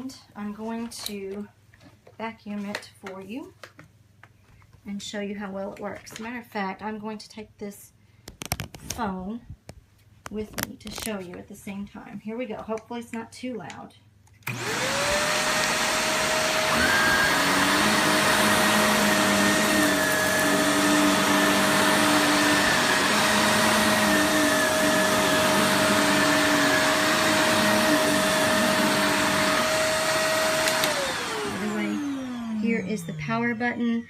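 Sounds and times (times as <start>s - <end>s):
vacuum cleaner running on a rug: 14.5s - 34.0s.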